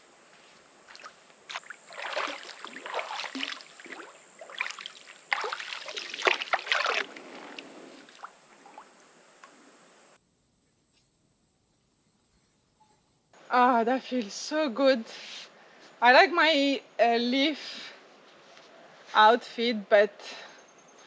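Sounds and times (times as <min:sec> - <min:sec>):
water splashing from swimming: 0:00.9 - 0:09.0.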